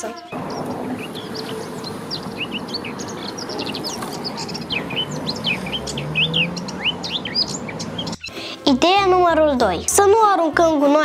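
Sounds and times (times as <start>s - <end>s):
small birds chirping: 0.0s - 10.1s
outdoor background hiss: 0.1s - 8.7s.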